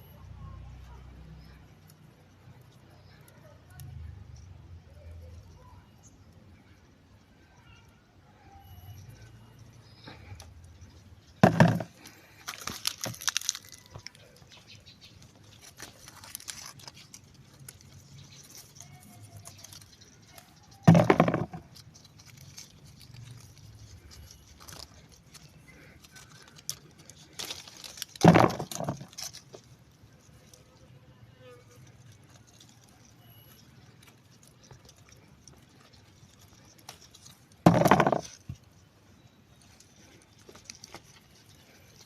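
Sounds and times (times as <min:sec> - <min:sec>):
tree leaves and branches rustling: 0:08.8 - 0:42.0.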